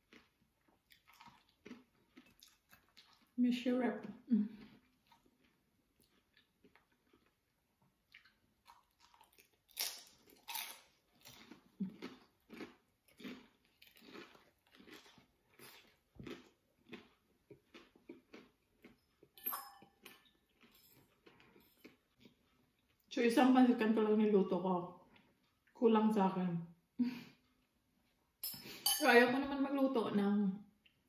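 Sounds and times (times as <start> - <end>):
crunching and chewing spring roll: 0.0 - 3.4, 4.0 - 19.4, 20.0 - 23.1.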